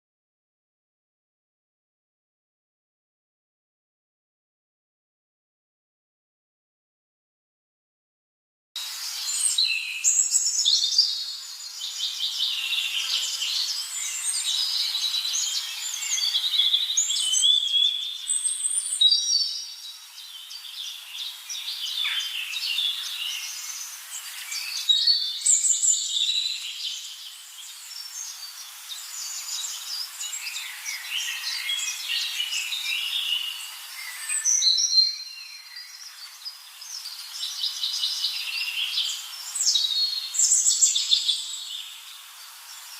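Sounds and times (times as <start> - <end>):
songbirds chirping and singing: 8.8 - 42.9
steady high hiss: 8.8 - 42.9.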